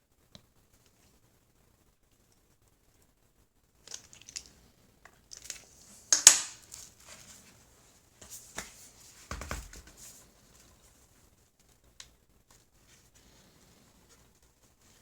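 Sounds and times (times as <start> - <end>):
rustling and crinkling: 3.8 - 15.0.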